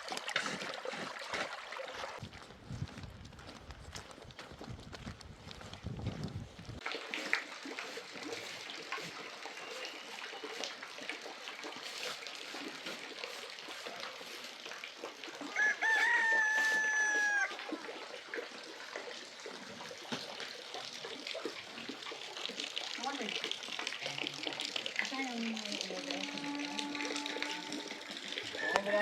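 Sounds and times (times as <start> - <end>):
rooster crowing: 15.5 - 17.6, 28.5 - 29.0.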